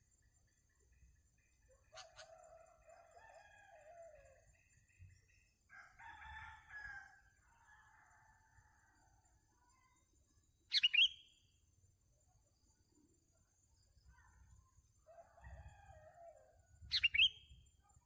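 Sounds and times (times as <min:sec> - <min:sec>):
rooster crowing: 0:05.7 - 0:07.2
faint high chirps: 0:09.6 - 0:11.6, 0:16.8 - 0:17.9.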